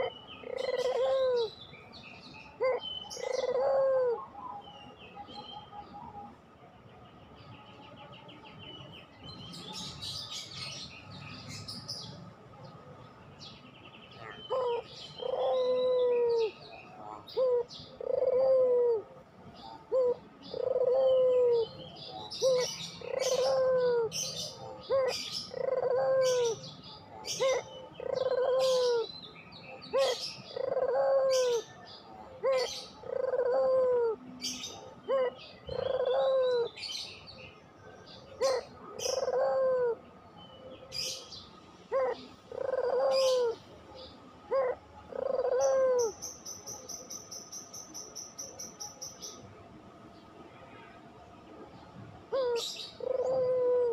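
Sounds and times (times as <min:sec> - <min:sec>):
dove cooing: 0:00.0 - 0:01.7, 0:02.4 - 0:06.4, 0:14.2 - 0:37.1, 0:38.0 - 0:49.4, 0:52.2 - 0:53.9
small birds chirping: 0:00.0 - 0:18.5, 0:19.2 - 0:50.4.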